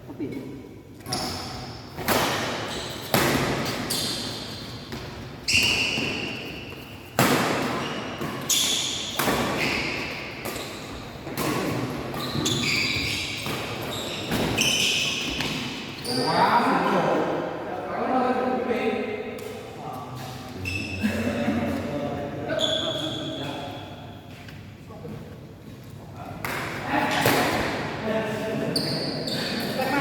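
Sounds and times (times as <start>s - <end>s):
shoes squeaking on court floor: 1.0s - 1.9s, 2.6s - 16.7s, 20.2s - 21.0s, 22.5s - 24.6s, 28.7s - 30.0s
racket hitting shuttlecock: 2.0s - 4.2s, 4.9s - 12.5s.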